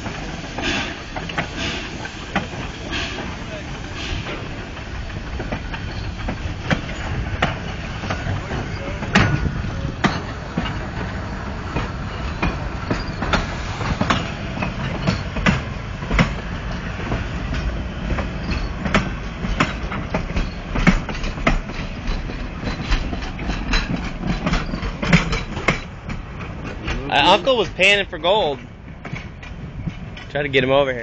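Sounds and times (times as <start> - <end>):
low train rumble: 0.0 - 31.0
train wheels clicking over rail joints: 0.0 - 31.0.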